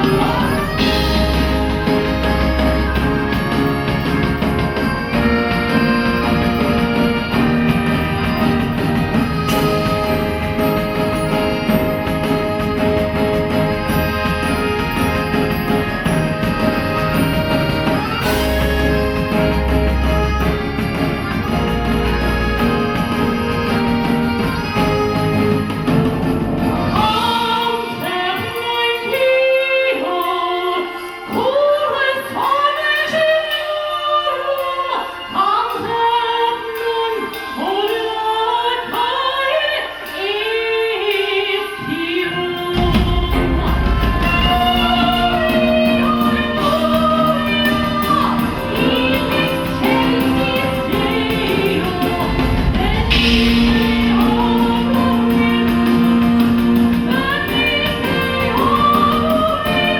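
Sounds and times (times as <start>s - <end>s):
woman singing lead vocal: 0.0s - 3.6s, 26.8s - 59.9s
recorded band music: 0.0s - 59.9s
backing singers: 41.8s - 59.9s.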